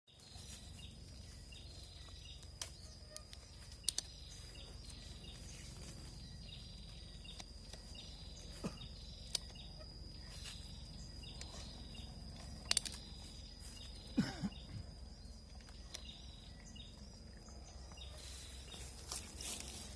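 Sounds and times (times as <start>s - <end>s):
high insect drone: 0.1s - 19.9s
sharp clicks: 2.3s - 4.3s, 9.2s - 9.7s, 12.3s - 13.2s.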